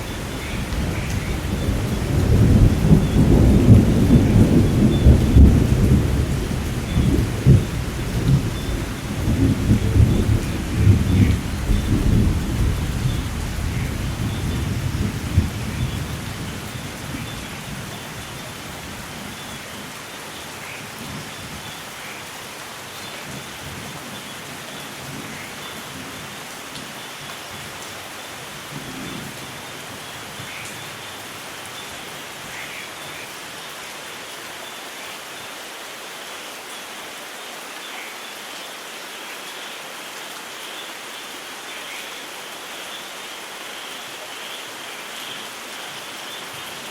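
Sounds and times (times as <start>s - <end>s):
thunder rumbling: 0.0s - 18.0s
steady rain falling: 0.0s - 46.9s.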